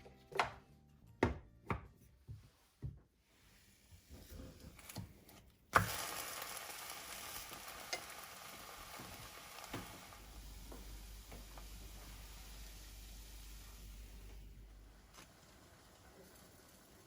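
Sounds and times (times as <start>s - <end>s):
frying pan sizzling: 5.8s - 14.4s, 15.0s - 17.0s.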